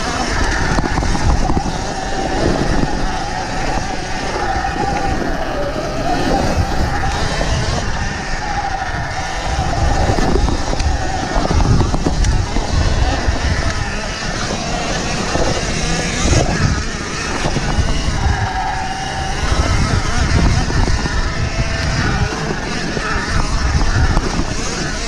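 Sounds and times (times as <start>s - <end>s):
electric motor whining: 0.0s - 25.0s
wind rumble on microphone: 0.0s - 25.0s.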